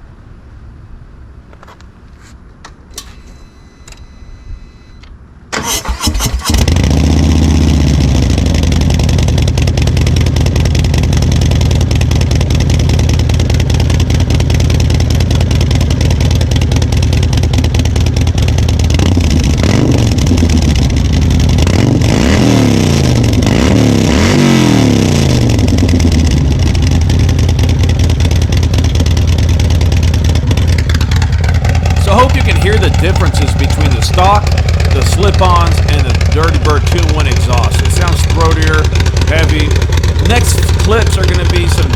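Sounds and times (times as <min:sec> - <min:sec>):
motorcycle engine starting: 0:05.5 - 0:41.9
motorcycle engine revving: 0:05.6 - 0:41.9
motorcycle engine idling: 0:06.4 - 0:22.2, 0:25.4 - 0:41.9.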